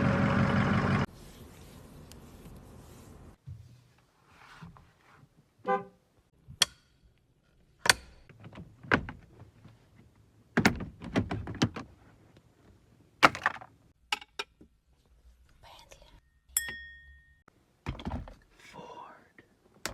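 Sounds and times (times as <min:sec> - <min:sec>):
horn toot: 0:05.6 - 0:06.0
sharp knocks and thunks: 0:17.8 - 0:18.4.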